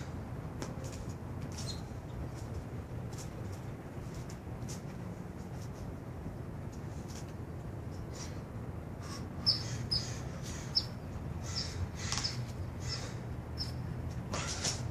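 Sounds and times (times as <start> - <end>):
steady low hum: 0.0 - 14.9
small bird chirping: 9.4 - 13.8.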